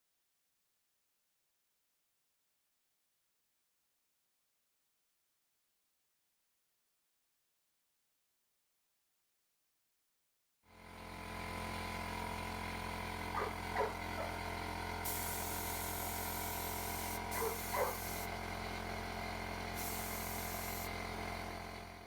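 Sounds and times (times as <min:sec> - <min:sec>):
paint spray hiss: 0:15.0 - 0:18.3, 0:19.8 - 0:20.9.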